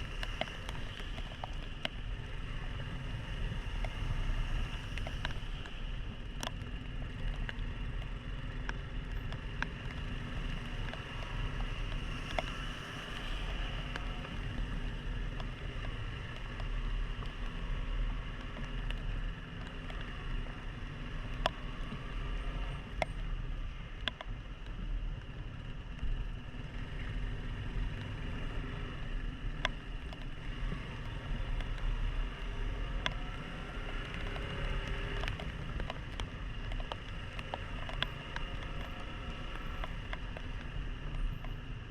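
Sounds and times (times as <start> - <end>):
motorcycle engine running: 0.0 - 41.9
sharp ticks: 0.0 - 41.9.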